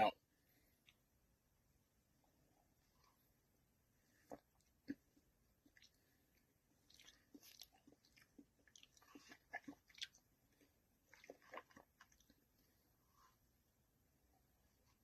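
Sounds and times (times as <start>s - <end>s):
soft chewing: 2.4s - 13.6s.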